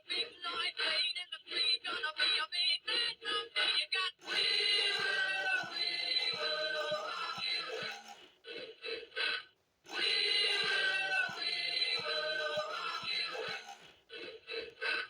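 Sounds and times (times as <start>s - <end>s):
toy synthetic voice singing: 0.0s - 8.1s.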